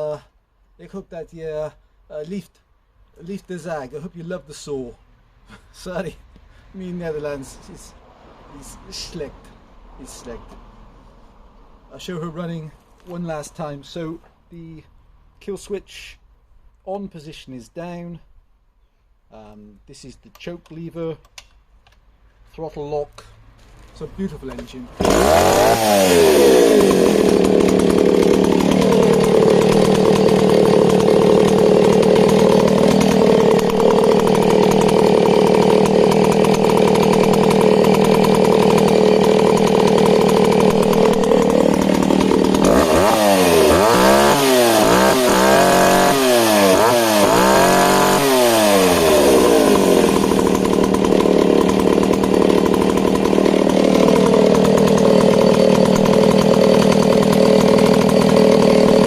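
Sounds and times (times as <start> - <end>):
chainsaw engine revving: 24.4 - 59.0.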